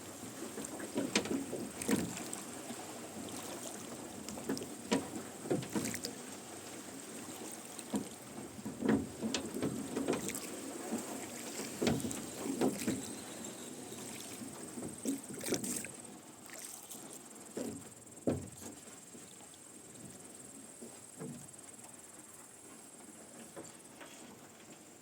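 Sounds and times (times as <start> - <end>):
oars splashing in water: 0.0 - 20.2.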